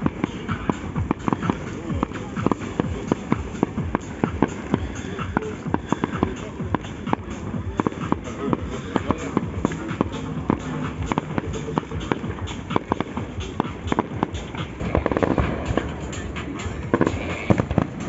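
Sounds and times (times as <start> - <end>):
music: 0.0 - 18.0
fireworks bangs and cracks: 8.9 - 18.0.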